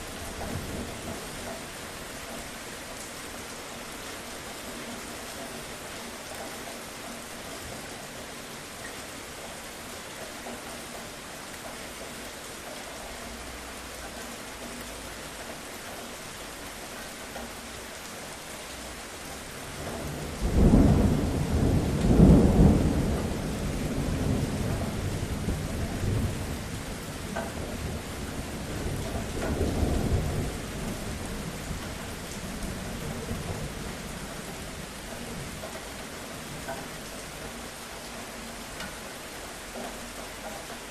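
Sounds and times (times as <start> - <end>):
steady rain: 0.0 - 40.9
thunder rumbling: 19.6 - 35.6.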